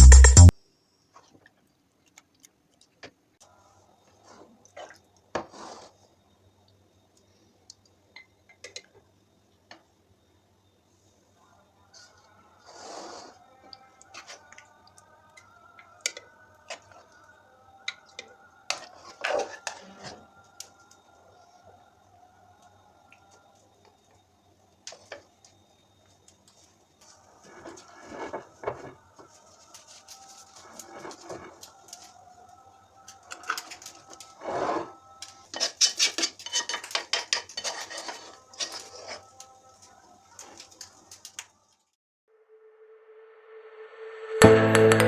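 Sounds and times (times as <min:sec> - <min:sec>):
dish scraping: 0:34.4 - 0:39.3.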